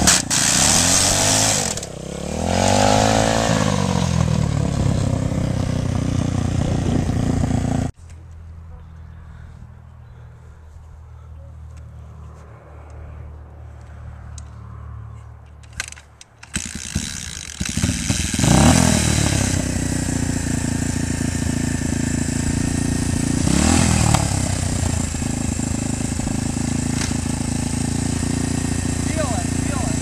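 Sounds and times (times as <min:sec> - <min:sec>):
dirt bike engine revving: 0:00.0 - 0:07.9, 0:16.4 - 0:30.0.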